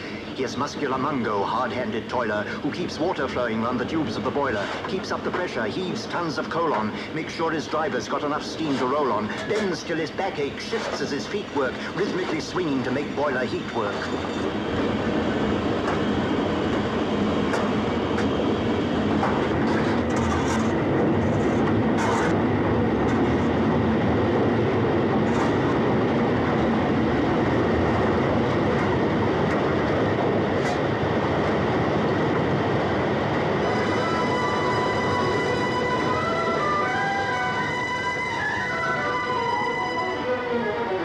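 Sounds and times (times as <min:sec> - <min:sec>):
train wheels rumbling on rail: 0:00.0 - 0:41.0
music: 0:33.6 - 0:41.0.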